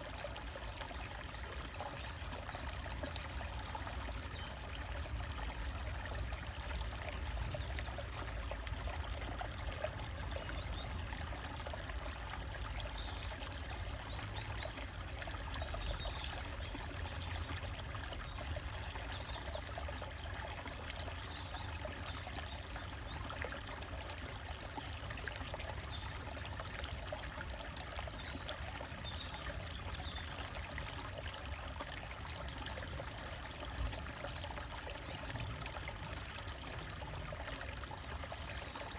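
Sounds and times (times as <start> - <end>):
stream trickling over rocks: 0.0 - 38.9.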